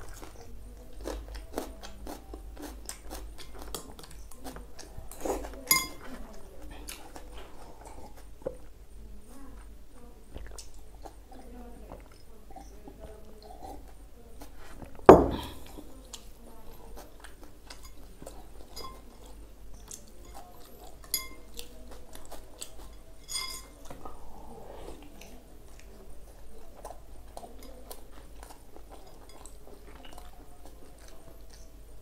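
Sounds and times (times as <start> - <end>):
man chewing and eating: 0.0 - 8.9, 9.6 - 32.0
dishware clinking: 5.7 - 6.1, 15.1 - 15.6, 21.1 - 21.5, 23.2 - 23.8
loud thump: 15.1 - 15.5.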